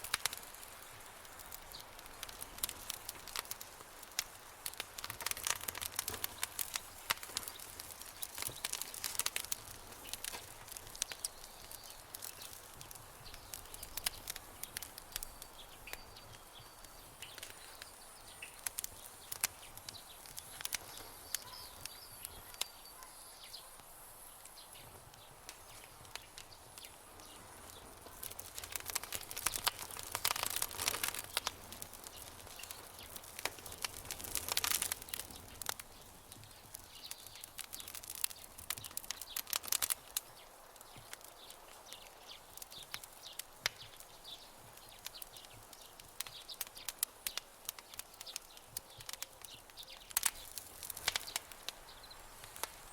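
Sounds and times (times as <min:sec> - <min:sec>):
wood fire crackling and popping: 0:00.0 - 0:52.9
faint bird chirps: 0:15.2 - 0:23.8.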